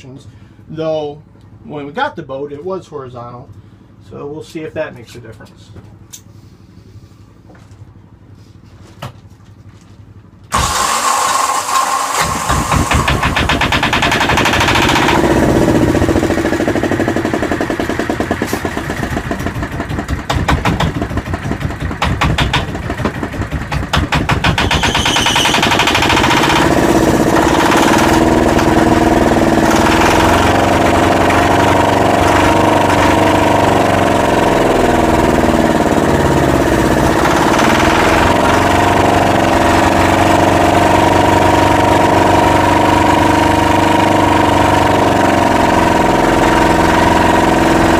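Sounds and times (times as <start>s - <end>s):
diesel engine idling: 25.8s - 43.1s.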